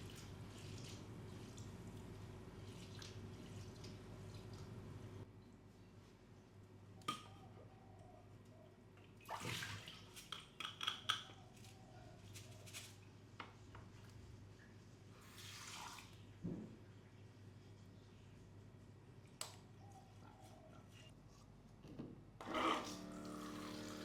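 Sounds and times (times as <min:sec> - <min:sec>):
water splashing at a sink: 0:09.2 - 0:10.5, 0:15.2 - 0:16.4.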